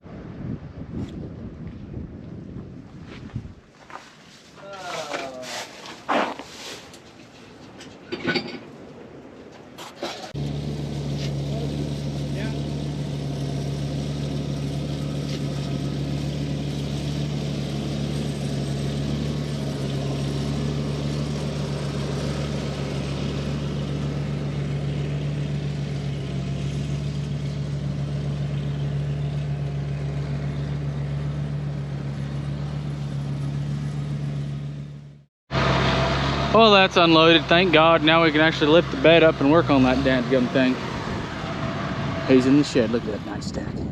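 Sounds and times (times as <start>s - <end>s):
farm machine engine humming: 10.1s - 43.5s.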